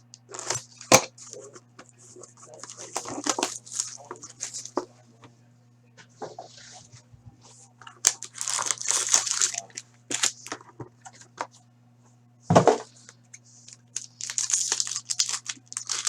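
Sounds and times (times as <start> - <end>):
card pack wrappers tearing and crinkling: 0.3 - 1.4, 2.4 - 4.8, 7.9 - 11.2, 13.6 - 16.0.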